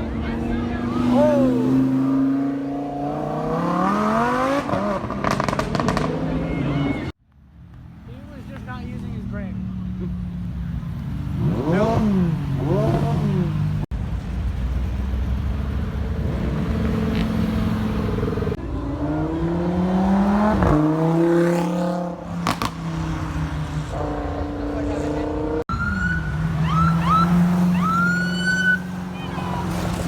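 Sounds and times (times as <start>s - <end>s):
car engine revving: 0.0s - 7.1s, 10.9s - 13.9s, 16.1s - 30.0s.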